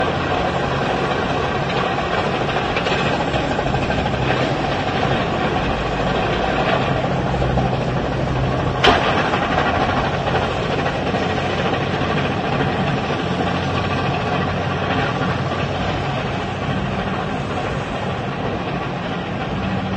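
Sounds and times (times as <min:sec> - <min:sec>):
bulldozer diesel engine running: 0:00.0 - 0:19.9
sharp crack: 0:08.6 - 0:12.6.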